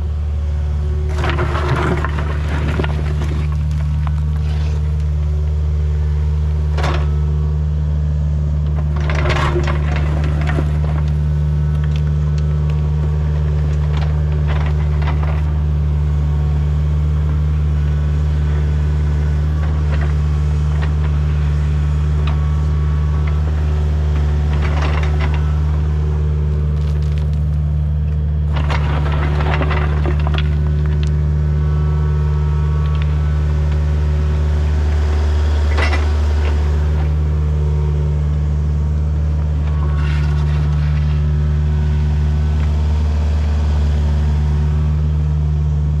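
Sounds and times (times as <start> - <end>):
heavy machine engine running: 0.0 - 46.0
wood cracking and snapping: 26.7 - 27.6.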